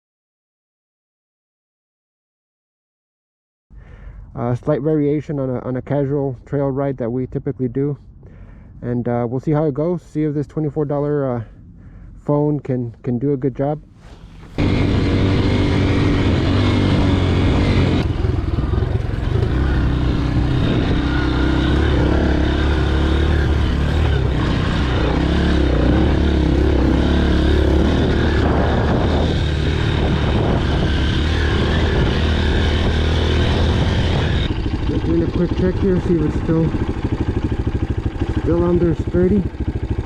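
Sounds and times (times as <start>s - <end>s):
dirt bike engine running: 14.2s - 40.0s.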